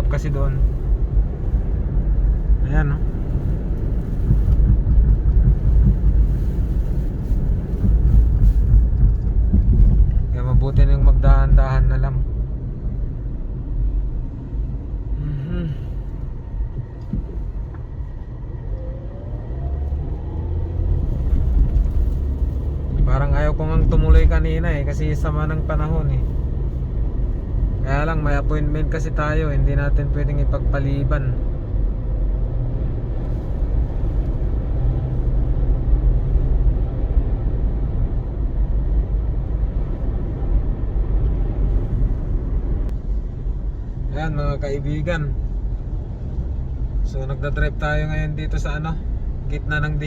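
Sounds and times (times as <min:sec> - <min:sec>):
engine and road rumble: 0:00.0 - 0:50.0
wind buffeting car: 0:00.0 - 0:50.0
faint rising engine note: 0:18.5 - 0:22.4.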